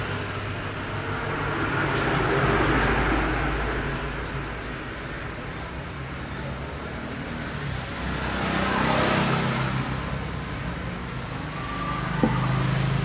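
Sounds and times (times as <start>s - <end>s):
vehicle engine humming: 9.9s - 13.0s.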